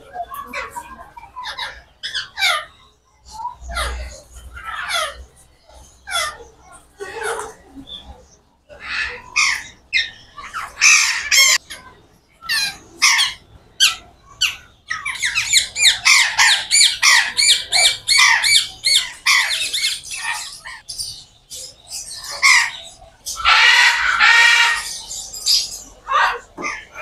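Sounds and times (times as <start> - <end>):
birds squawking: 0.1 - 27.0.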